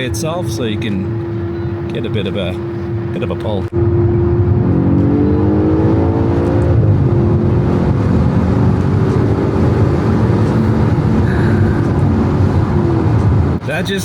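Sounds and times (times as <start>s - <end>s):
car engine accelerating: 0.0s - 13.7s
road noise: 0.0s - 14.0s.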